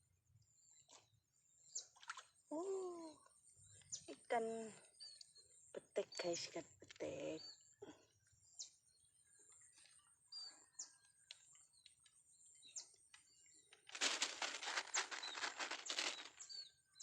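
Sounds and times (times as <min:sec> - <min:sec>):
small birds chirping: 0:00.4 - 0:17.0
rapid rustling flutter: 0:13.7 - 0:16.7.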